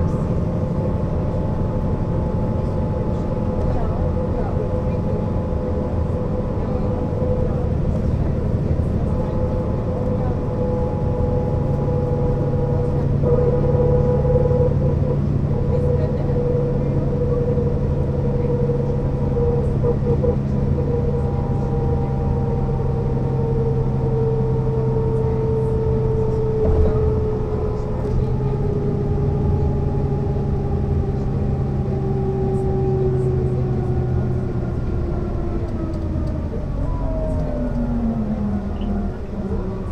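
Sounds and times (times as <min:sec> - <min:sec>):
bus engine rumble: 0:00.0 - 0:39.9
drivetrain whine: 0:00.0 - 0:39.9.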